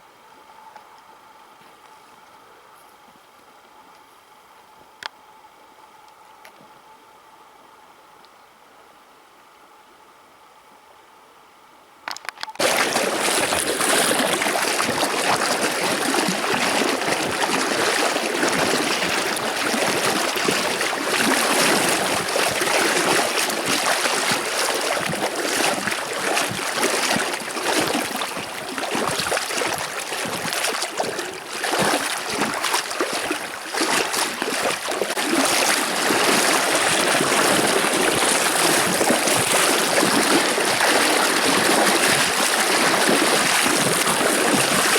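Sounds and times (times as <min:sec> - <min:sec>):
rushing river water: 0:12.6 - 0:44.9.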